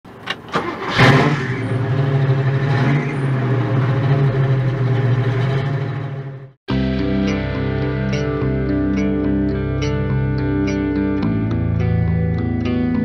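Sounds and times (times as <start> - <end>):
car engine starting and idling: 0.1 - 6.6.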